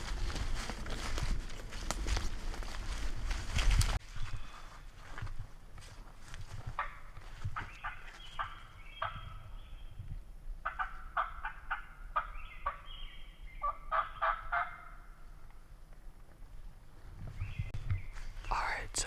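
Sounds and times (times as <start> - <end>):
turkey yelping: 13.6 - 15.0.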